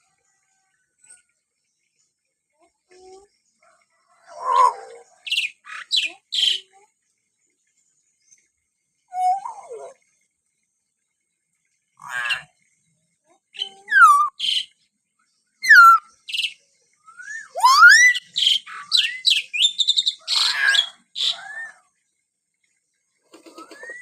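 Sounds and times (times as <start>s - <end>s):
myna bird whistling and calling: 13.6s - 14.7s, 15.6s - 21.8s, 23.5s - 24.0s.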